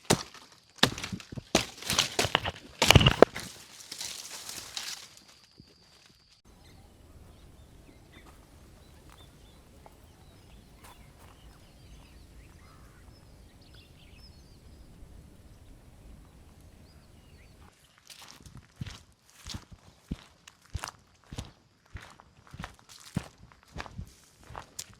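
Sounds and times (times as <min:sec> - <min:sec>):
footsteps: 0:00.0 - 0:06.2
faint bird chirps: 0:06.5 - 0:18.1.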